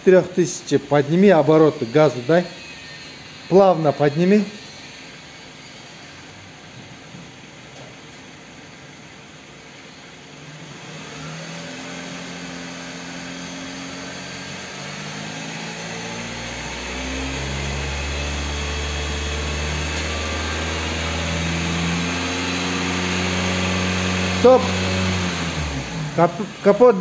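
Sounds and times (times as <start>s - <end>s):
car engine revving: 10.4s - 27.0s.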